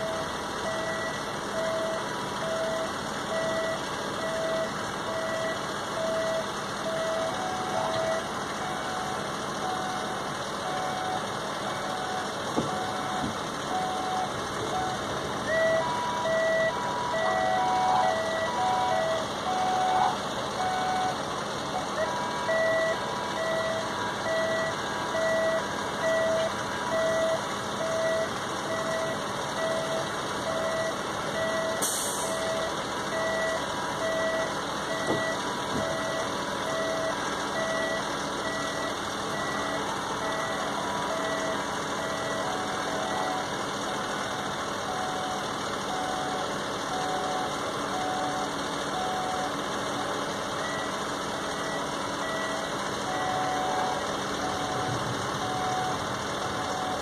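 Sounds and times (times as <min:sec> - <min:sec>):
electronic warning beeps: 0:00.0 - 0:57.0.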